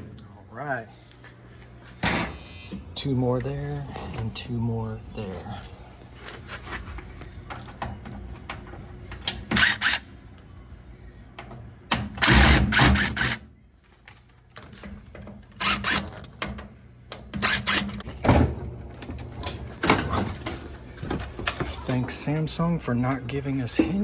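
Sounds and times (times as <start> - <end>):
power screwdriver running: 9.6 - 10.0, 12.2 - 13.4, 15.6 - 16.1.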